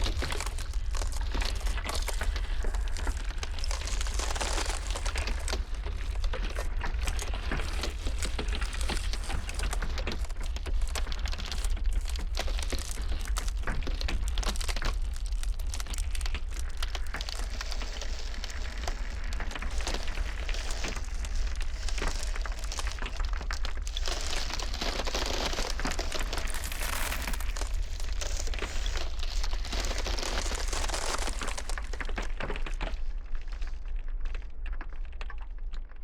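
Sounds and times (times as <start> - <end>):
ice crackling and cracking: 0.0 - 36.0.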